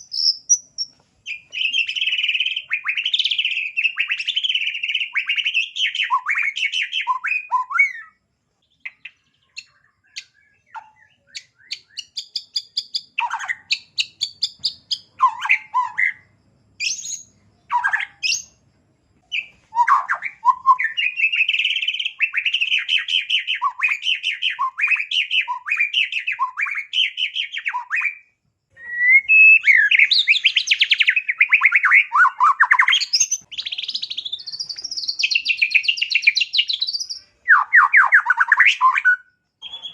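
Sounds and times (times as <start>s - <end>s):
songbird singing trills and chips: 0.0s - 18.6s, 19.2s - 28.2s, 28.8s - 39.9s.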